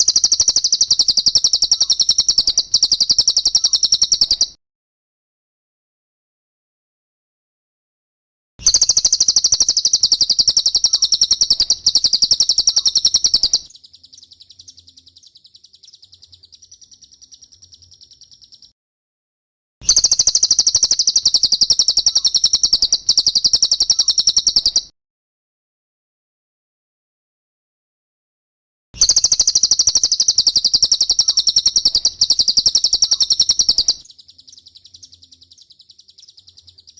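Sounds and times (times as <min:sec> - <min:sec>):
bird's high-pitched chattering trill: 0:00.0 - 0:04.6, 0:08.6 - 0:18.7, 0:19.8 - 0:24.9, 0:29.0 - 0:36.9.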